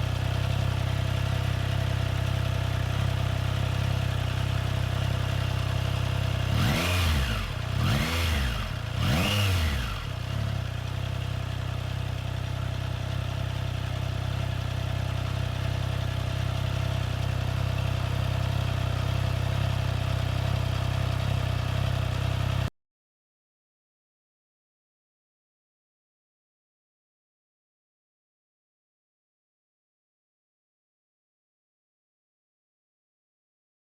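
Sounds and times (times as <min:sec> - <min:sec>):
motorcycle engine idling: 0:00.0 - 0:22.7
motorcycle engine revving: 0:00.0 - 0:22.7.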